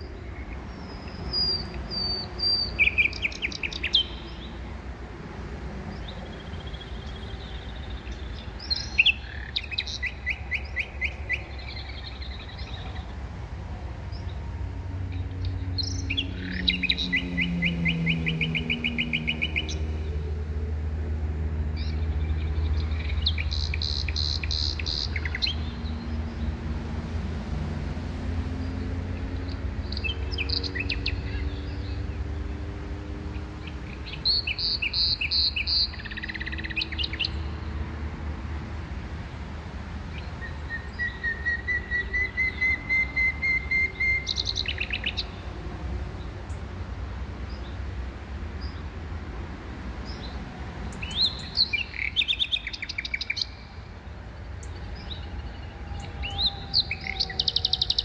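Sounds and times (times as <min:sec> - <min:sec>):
small birds chirping: 0:00.0 - 0:04.6, 0:05.9 - 0:13.1, 0:15.2 - 0:20.2, 0:21.8 - 0:26.4, 0:28.6 - 0:32.5, 0:33.3 - 0:37.6, 0:40.1 - 0:45.5, 0:50.0 - 0:58.0.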